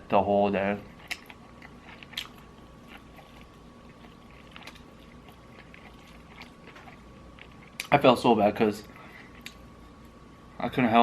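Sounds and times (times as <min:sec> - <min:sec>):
chewing fried chicken: 0:00.6 - 0:08.1
mouth clicks and crunches: 0:00.9 - 0:08.1.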